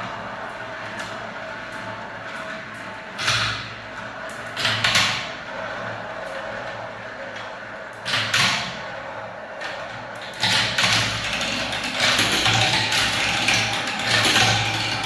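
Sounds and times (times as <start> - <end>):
marbles rolling on a track: 11.0 - 15.0.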